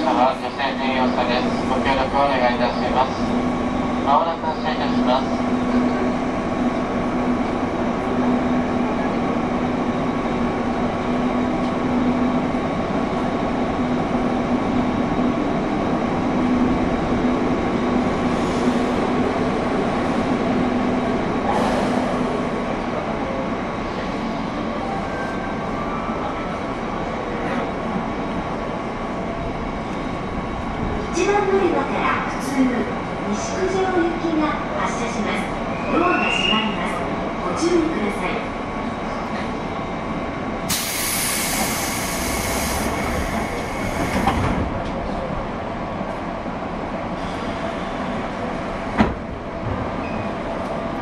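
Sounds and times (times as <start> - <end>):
train wheels on rails: 40.6 - 51.0.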